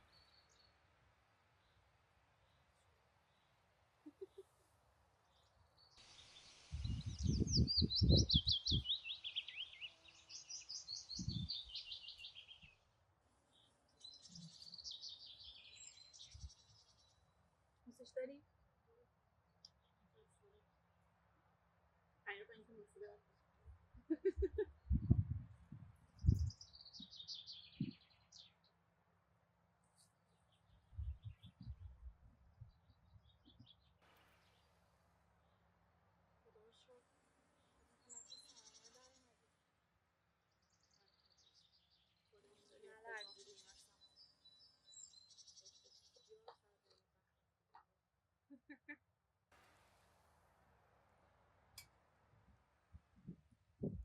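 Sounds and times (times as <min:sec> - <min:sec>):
songbird singing: 0:00.0 - 0:00.8, 0:01.5 - 0:18.4, 0:24.2 - 0:28.8, 0:29.8 - 0:35.7, 0:36.6 - 0:39.6, 0:40.4 - 0:47.0
faint bird chirps: 0:01.6 - 0:12.8, 0:13.4 - 0:17.3, 0:26.1 - 0:28.7, 0:29.9 - 0:34.8, 0:36.6 - 0:39.5, 0:40.5 - 0:47.0.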